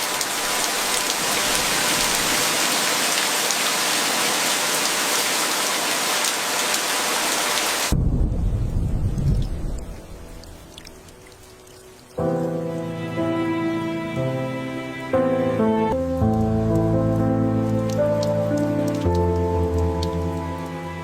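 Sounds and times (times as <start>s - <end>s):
heavy rain falling: 0.0s - 15.1s, 15.8s - 21.0s
low rumble: 7.9s - 11.1s.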